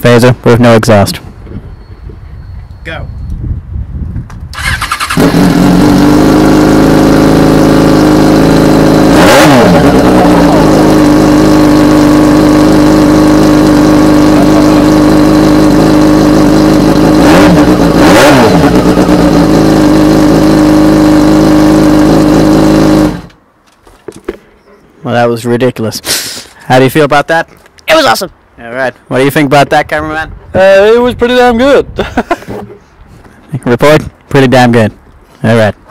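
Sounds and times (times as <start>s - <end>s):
motorcycle engine idling and revving: 4.6s - 23.4s.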